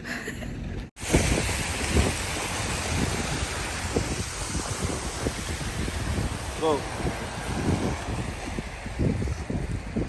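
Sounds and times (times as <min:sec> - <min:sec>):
wind buffeting microphone: 0:00.7 - 0:10.0.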